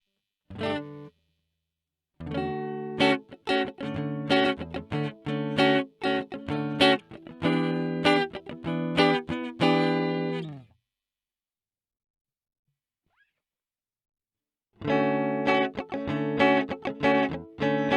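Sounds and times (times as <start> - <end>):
clean electric guitar: 0.5 - 1.1, 2.2 - 10.7, 14.8 - 17.9.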